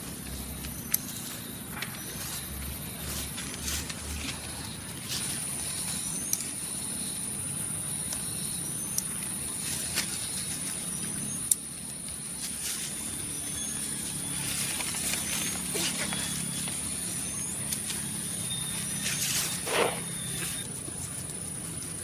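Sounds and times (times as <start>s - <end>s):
high-pitched whine: 0.0s - 22.0s
faint rising chirps: 12.6s - 20.7s.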